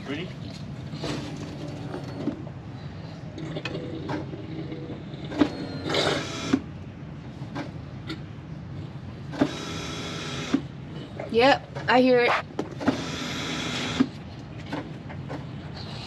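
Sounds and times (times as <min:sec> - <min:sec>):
fuel pump whirring: 0:11.9 - 0:15.5.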